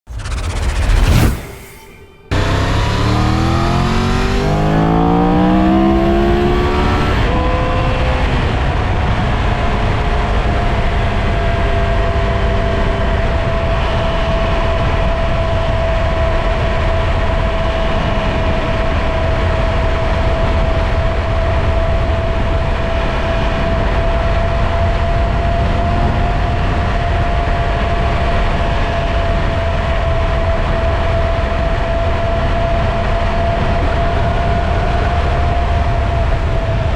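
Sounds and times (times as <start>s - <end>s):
motorcycle engine accelerating: 0.0s - 10.4s
wind and road noise: 0.0s - 16.0s.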